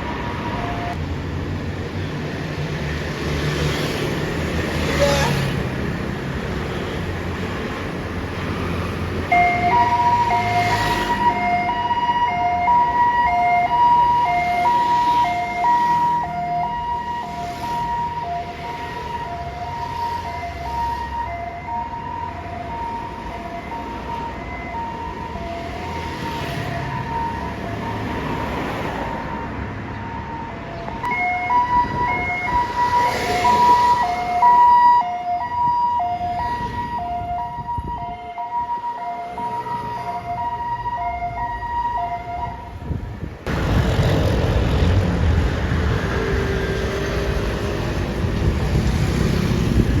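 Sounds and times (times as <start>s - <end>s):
ambulance siren two-tone wail: 0.0s - 1.0s, 9.2s - 43.0s
traffic and engine noise: 0.0s - 50.0s.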